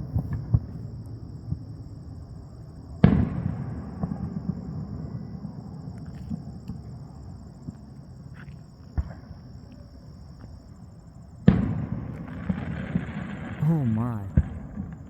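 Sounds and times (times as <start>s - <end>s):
small firework pops and crackles: 3.0s - 10.6s, 11.4s - 13.5s.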